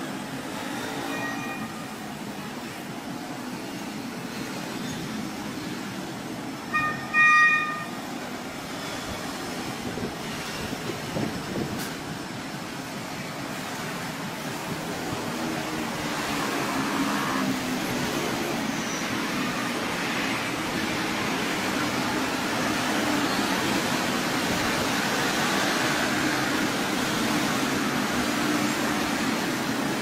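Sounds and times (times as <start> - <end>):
train rumbling: 0.0 - 30.0
train horn blasts: 6.7 - 8.0.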